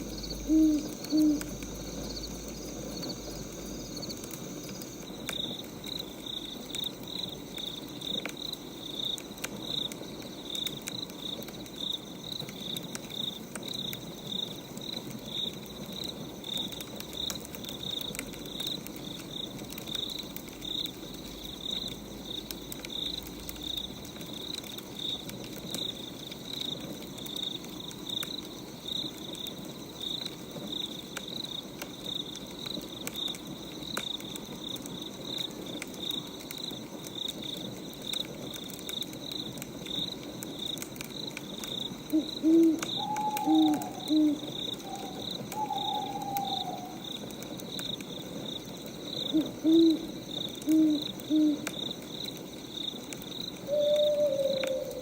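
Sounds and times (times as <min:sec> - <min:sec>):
owl hooting: 0:00.0 - 0:01.8, 0:42.1 - 0:47.0, 0:49.3 - 0:51.7, 0:53.7 - 0:55.0
crickets chirping: 0:00.0 - 0:55.0
firewood crackling: 0:00.0 - 0:55.0.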